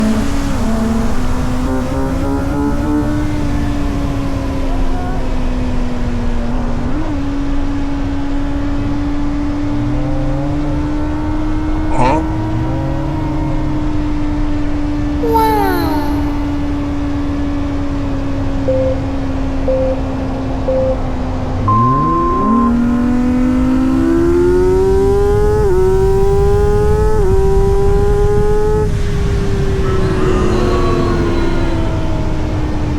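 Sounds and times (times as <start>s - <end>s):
motorcycle engine accelerating: 18.6s - 32.9s.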